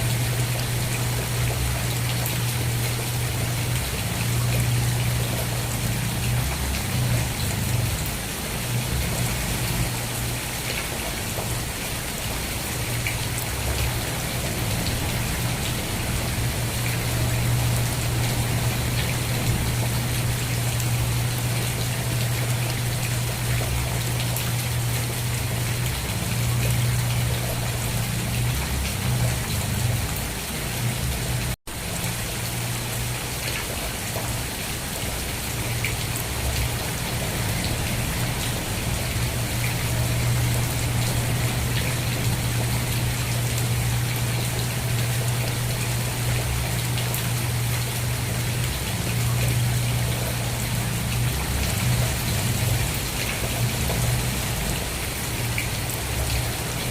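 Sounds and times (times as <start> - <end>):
heavy rain falling: 0.0 - 56.9.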